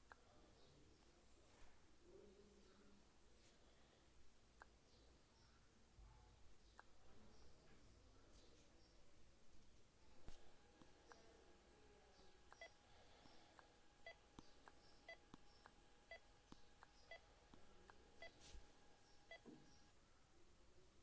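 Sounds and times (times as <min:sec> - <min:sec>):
faint electronic beeps: 0:10.1 - 0:20.0.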